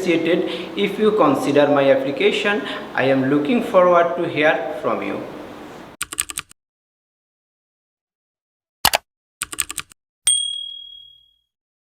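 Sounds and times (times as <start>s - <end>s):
typewriter key clicks: 8.8s - 10.0s
typewriter bell ding: 10.3s - 11.5s.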